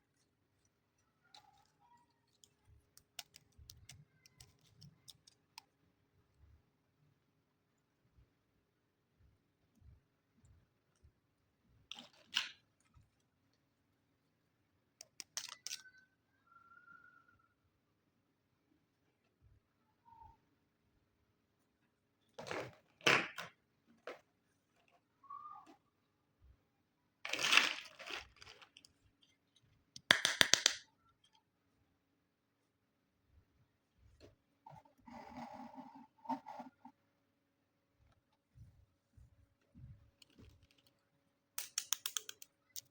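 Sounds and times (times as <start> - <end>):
plastic toy pieces clicking: 2.3 - 5.5, 15.0 - 16.0, 30.0 - 30.8, 41.6 - 42.9
packaging crinkling rustle: 27.3 - 29.0
sharp plastic clicks: 30.0 - 30.9, 41.6 - 42.9.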